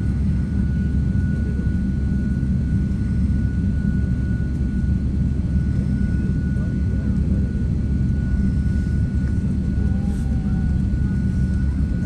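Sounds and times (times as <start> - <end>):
jet engines rumbling and whining: 0.0 - 12.0.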